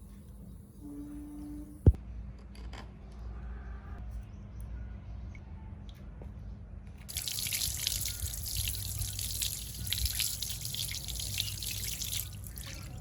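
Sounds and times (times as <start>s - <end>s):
water running and splashing: 7.1s - 13.0s.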